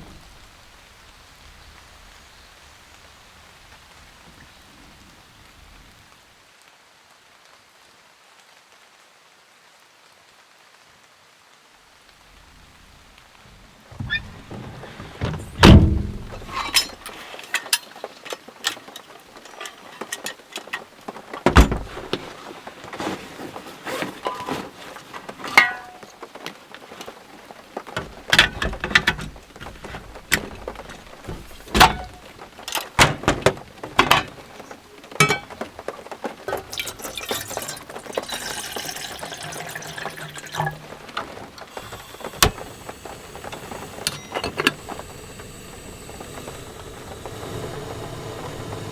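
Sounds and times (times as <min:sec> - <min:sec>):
knocks and clatters of handling: 0:13.5 - 0:45.4
heavy thump: 0:14.0 - 0:16.7
hissing noise: 0:40.6 - 0:48.9.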